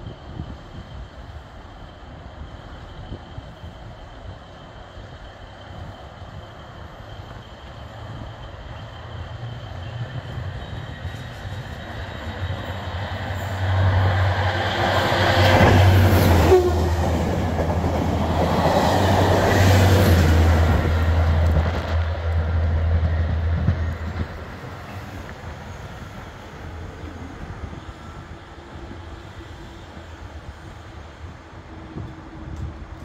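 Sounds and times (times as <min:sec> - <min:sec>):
locomotive engine drone: 0:00.0 - 0:33.0
train wheels rumbling on rails: 0:00.0 - 0:33.0.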